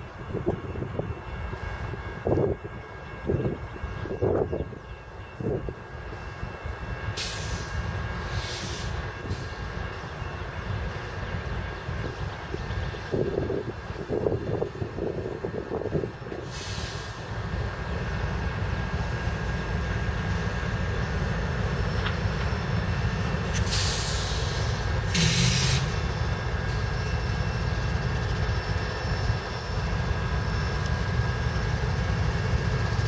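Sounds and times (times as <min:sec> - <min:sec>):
locomotive engine rumble: 0:00.0 - 0:33.0
short bursts of hiss: 0:23.6 - 0:26.0.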